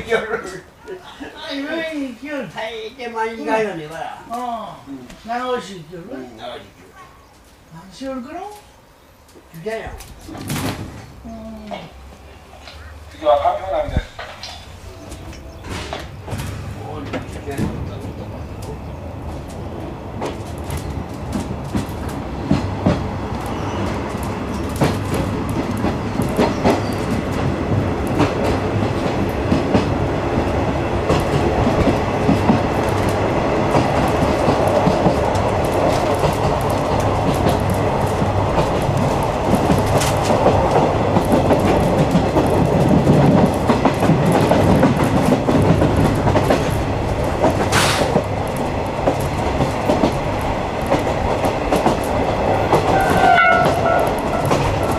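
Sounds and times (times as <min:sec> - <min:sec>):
wheels clicking over rail joints: 0:09.3 - 0:54.9
train running rumble: 0:12.0 - 0:54.9.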